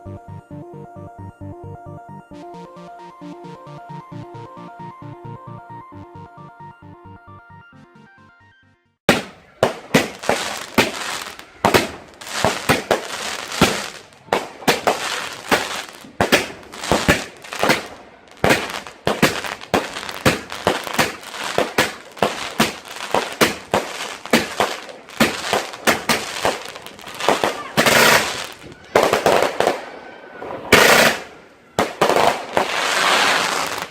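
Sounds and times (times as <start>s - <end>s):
fireworks bangs: 9.1s - 33.9s
fireworks crackling: 9.1s - 33.9s.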